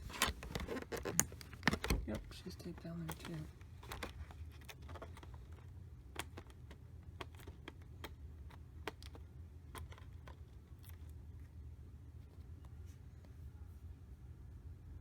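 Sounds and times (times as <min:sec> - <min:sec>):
hands clicking plastic packaging: 0:00.0 - 0:11.0
steady low hum: 0:00.0 - 0:15.0.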